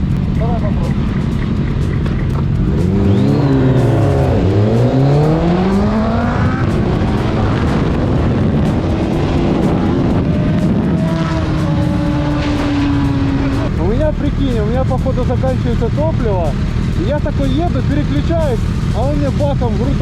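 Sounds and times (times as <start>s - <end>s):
motorcycle engine accelerating: 0.0s - 20.0s
wind noise: 0.0s - 20.0s.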